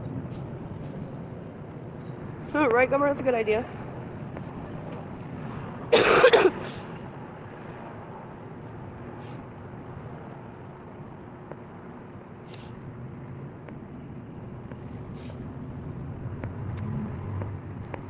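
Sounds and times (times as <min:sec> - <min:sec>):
road traffic rumble: 0:00.0 - 0:18.0
short hisses: 0:09.2 - 0:09.4, 0:12.5 - 0:12.8, 0:15.1 - 0:15.4.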